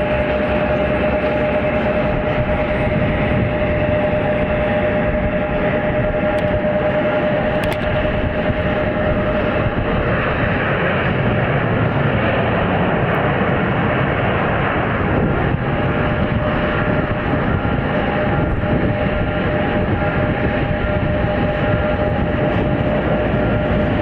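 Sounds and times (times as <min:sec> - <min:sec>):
faint engine whine: 0:00.0 - 0:24.0
jet engines rushing: 0:00.0 - 0:24.0.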